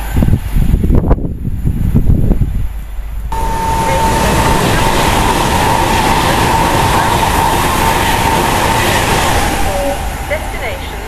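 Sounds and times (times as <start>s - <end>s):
train rushing noise: 0.0s - 11.0s
high whine: 3.3s - 11.0s.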